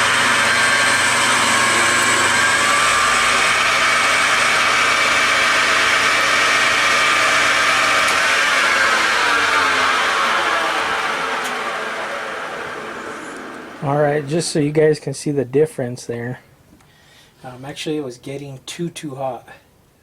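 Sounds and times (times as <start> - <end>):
metal lathe whining: 0.0 - 14.3
lathe spindle coasting down: 0.0 - 14.5.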